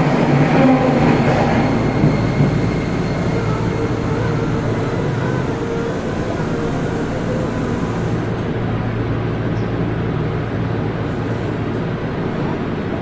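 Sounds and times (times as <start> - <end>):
motor and wheel hum: 0.0 - 12.4
subway car rumble: 0.0 - 13.0
high hiss: 1.6 - 8.4.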